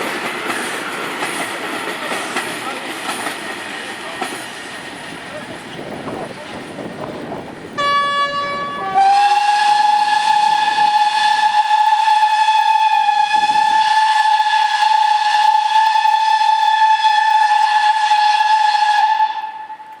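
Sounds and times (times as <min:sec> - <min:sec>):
steam locomotive whistle blast: 0:07.8 - 0:20.0.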